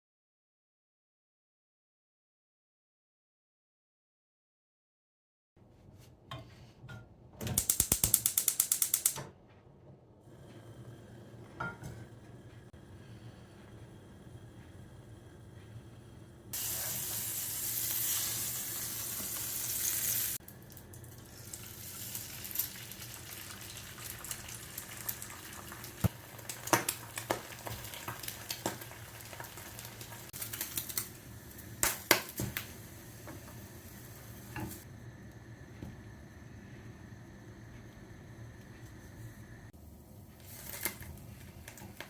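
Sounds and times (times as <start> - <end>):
food frying in a pan: 16.5 - 36.3.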